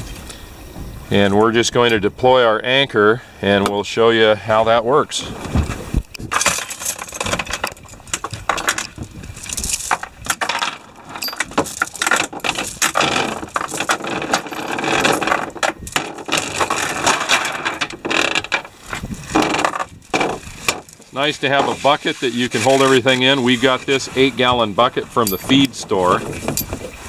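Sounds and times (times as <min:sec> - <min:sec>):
anchor chain metallic clatter: 0:06.3 - 0:21.0, 0:25.2 - 0:27.0.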